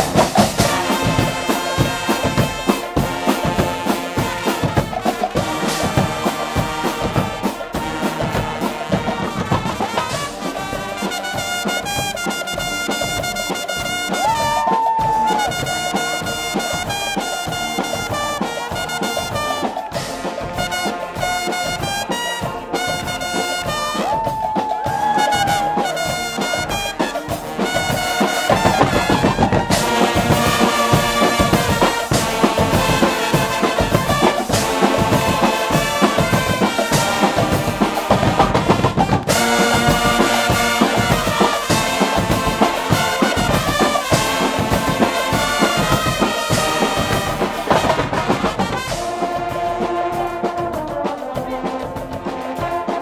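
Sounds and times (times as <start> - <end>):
drum beat: 0.0 - 53.0
trumpets and trombones: 0.0 - 53.0.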